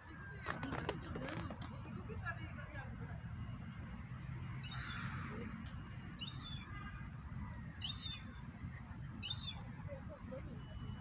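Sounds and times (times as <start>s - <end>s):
small bird chirping: 6.2s - 6.6s, 7.8s - 8.4s, 9.2s - 9.7s.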